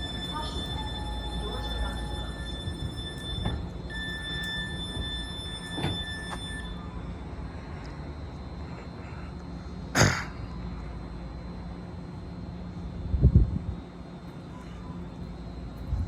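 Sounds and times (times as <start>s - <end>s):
electric train humming: 0.0s - 9.9s.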